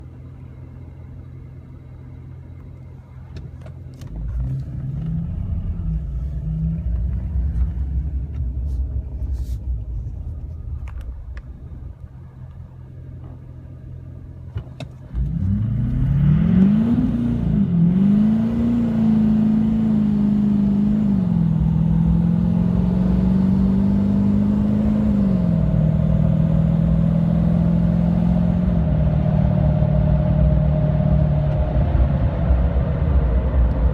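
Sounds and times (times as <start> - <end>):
engine note rising through gear shifts: 0.0 - 33.9
diesel pickup engine revving: 3.9 - 14.4, 15.1 - 33.9.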